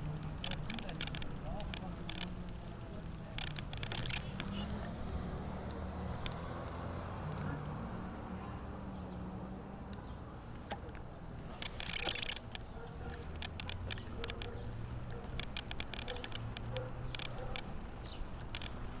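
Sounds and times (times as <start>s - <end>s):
bicycle clicking and rattling: 0.0s - 6.6s, 10.5s - 19.0s.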